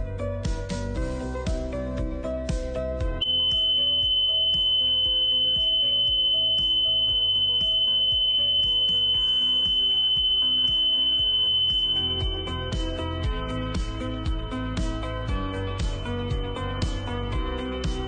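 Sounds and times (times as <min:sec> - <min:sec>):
background music: 0:00.0 - 0:18.0
high-pitched electronic tone: 0:03.2 - 0:13.7.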